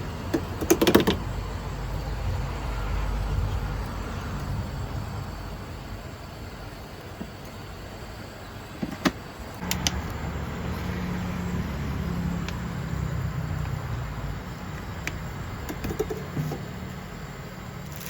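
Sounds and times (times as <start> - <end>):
engine running: 9.5 - 18.0
sharp clicks and taps: 9.6 - 10.2.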